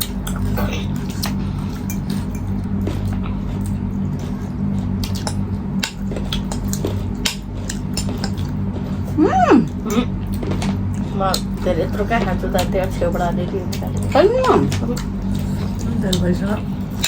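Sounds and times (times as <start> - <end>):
low electrical hum: 0.0 - 17.0
wet chewing: 0.0 - 17.0.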